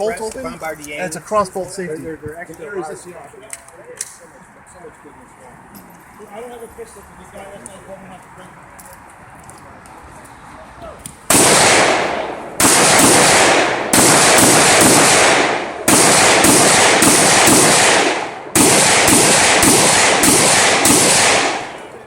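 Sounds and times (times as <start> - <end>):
rifle shots echoing: 11.3 - 22.0.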